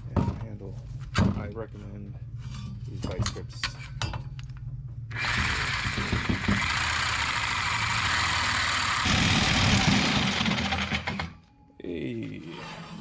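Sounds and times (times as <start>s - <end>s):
reciprocating saw cutting metal pipe: 5.1s - 11.4s.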